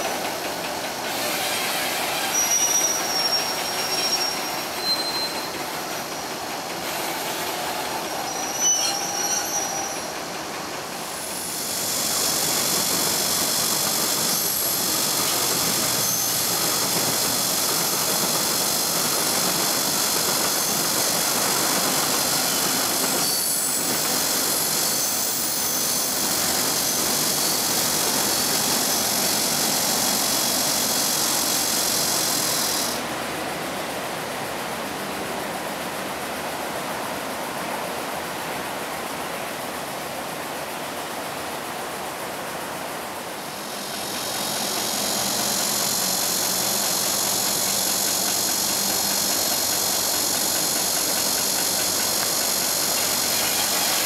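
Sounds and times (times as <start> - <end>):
train rolling rumble: 0.0 - 54.0
high wheel squeal: 0.8 - 10.3, 11.5 - 17.2, 17.8 - 33.0, 43.6 - 54.0.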